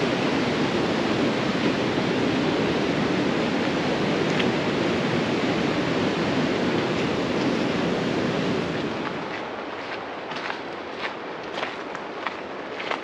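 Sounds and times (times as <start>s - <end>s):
waterfall rushing: 0.0s - 9.8s.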